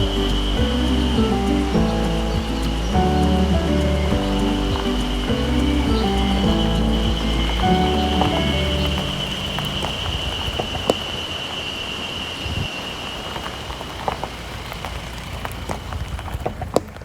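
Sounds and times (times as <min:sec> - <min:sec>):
high-pitched tone: 0:00.0 - 0:09.8
rain falling: 0:00.0 - 0:17.0.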